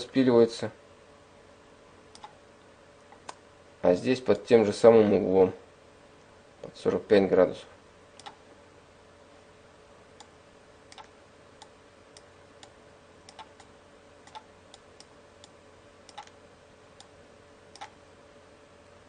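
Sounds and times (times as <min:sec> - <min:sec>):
faint steady hum: 0:00.0 - 0:19.0
computer mouse clicking: 0:02.1 - 0:02.4, 0:08.2 - 0:08.4, 0:10.9 - 0:16.4, 0:17.7 - 0:18.0.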